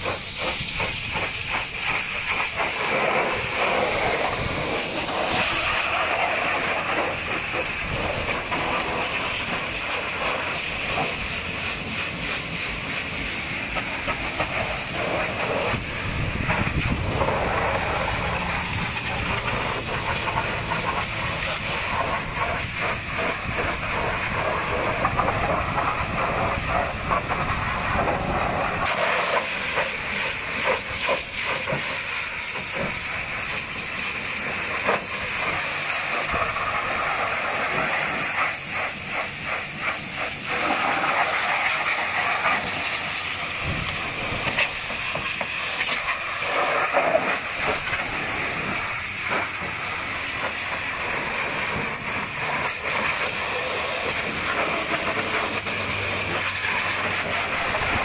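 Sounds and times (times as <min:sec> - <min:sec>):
pressure washer spray hissing: 0:00.0 - 0:58.0
water spattering on metal: 0:00.0 - 0:58.0.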